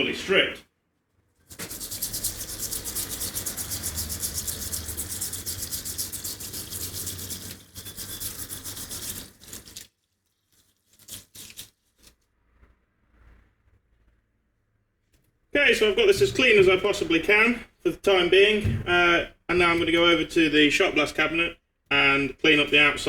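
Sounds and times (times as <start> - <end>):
brush scrubbing metal: 1.4 - 12.2, 15.6 - 17.2.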